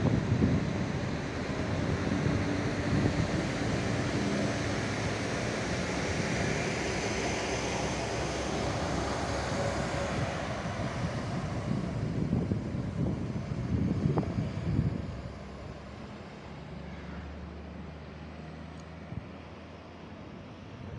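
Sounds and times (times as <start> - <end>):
wind buffeting microphone: 0.0 - 16.1
diesel railcar engine hum: 0.0 - 20.9.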